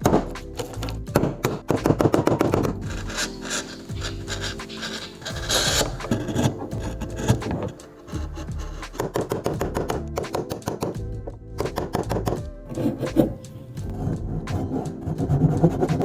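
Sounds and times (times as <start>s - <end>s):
background music: 0.0s - 16.0s
tool rasping on wood: 0.6s - 10.9s.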